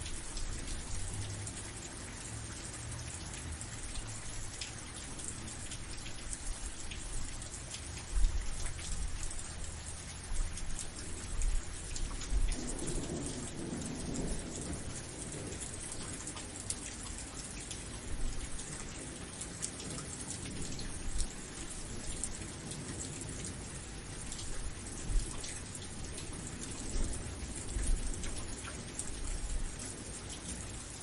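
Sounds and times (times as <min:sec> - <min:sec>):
heavy rain: 0:00.0 - 0:31.0
thunder rumbling: 0:11.0 - 0:16.9.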